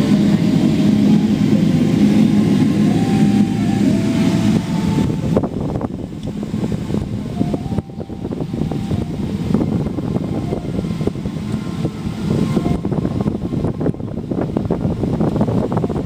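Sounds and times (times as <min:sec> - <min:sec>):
airliner low rumble: 0:00.0 - 0:16.0.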